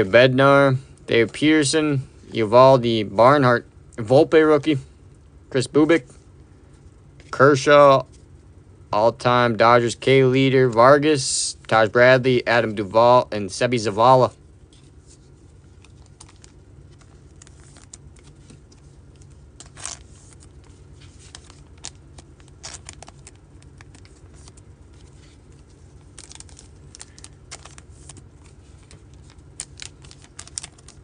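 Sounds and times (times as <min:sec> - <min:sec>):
low steady hum: 0:00.0 - 0:31.0
packaging rustling and crinkling: 0:14.7 - 0:31.0.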